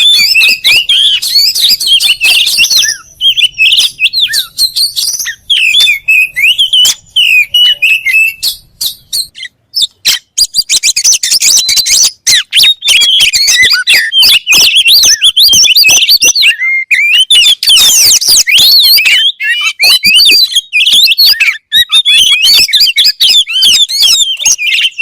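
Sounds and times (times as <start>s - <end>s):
bird singing whistles and chirps: 0.0s - 25.0s.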